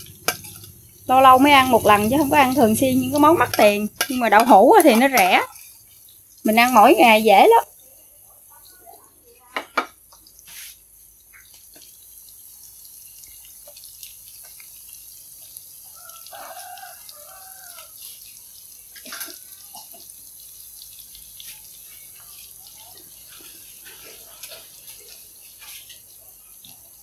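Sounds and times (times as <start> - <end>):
oil popping: 0.0 - 5.6
food frying in hot oil: 0.0 - 27.0.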